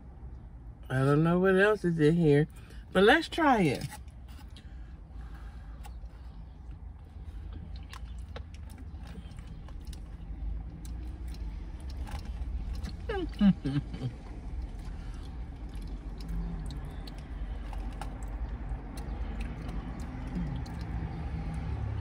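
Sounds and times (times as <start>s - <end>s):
person chewing food: 3.9s - 22.0s.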